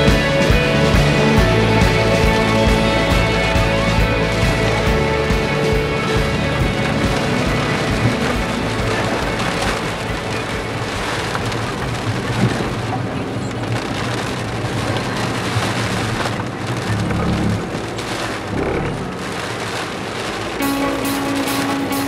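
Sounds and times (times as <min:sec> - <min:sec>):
engine and road rumble: 0:00.0 - 0:22.0
heavy rain and wind on car: 0:00.0 - 0:22.0.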